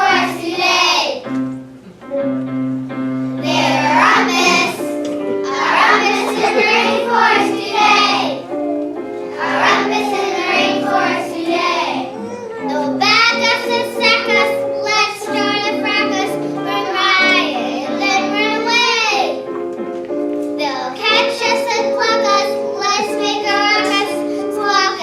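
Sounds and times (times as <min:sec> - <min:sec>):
children singing: 0:00.0 - 0:01.2, 0:03.4 - 0:19.4, 0:20.7 - 0:25.0
instrumental accompaniment: 0:00.0 - 0:25.0.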